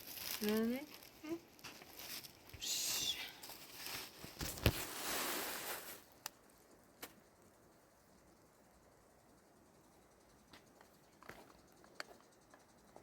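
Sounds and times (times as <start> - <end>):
rustling handling noise: 0.0 - 2.6, 3.4 - 6.2.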